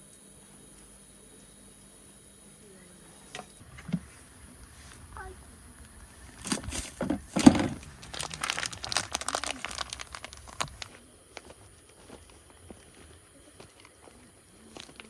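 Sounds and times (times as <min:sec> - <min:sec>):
items clicking and knocking: 0:05.8 - 0:11.6
packaging crinkling: 0:06.3 - 0:12.4.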